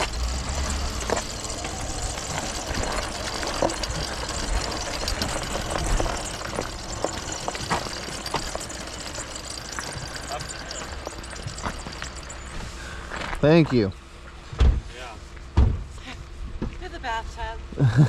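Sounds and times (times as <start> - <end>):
knocks and rattles: 0.0 - 13.8
truck engine running: 0.0 - 14.2.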